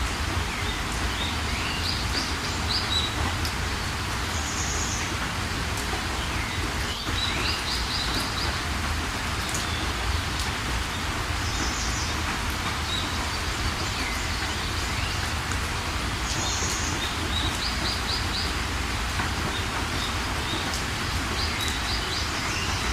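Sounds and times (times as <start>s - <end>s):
steady rain: 0.0s - 22.9s
birds chirping: 19.4s - 22.9s.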